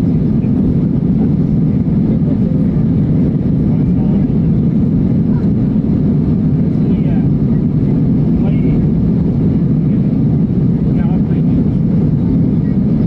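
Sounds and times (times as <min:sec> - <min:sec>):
airliner engines and rushing air: 0:00.0 - 0:13.0.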